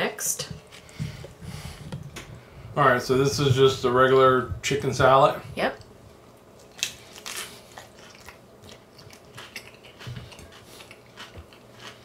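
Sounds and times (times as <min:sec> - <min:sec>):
crunchy chewing: 0:06.6 - 0:12.0.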